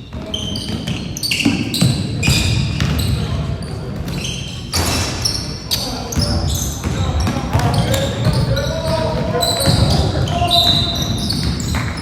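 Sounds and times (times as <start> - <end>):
murmur of voices: 0.0 - 12.0
sneakers squeaking on court: 0.0 - 12.0
basketball bouncing: 0.1 - 3.2, 6.2 - 12.0.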